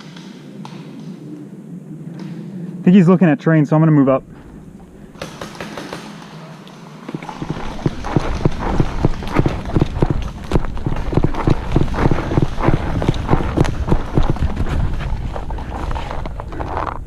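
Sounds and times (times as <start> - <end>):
running footsteps on hard dirt: 7.1 - 17.0
wind rumbling on microphone: 7.2 - 17.0.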